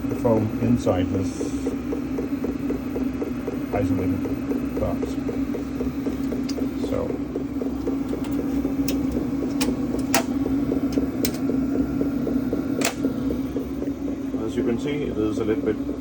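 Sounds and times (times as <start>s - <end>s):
heater blower hum: 0.0s - 16.0s
fuel pump ticking: 1.3s - 14.2s
sharp clicks: 8.0s - 11.5s, 12.8s - 13.1s.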